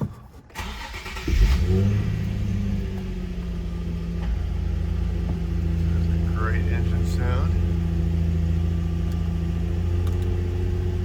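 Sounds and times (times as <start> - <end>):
starter motor cranking: 0.5 - 2.2
car engine revving and idling: 0.6 - 11.0.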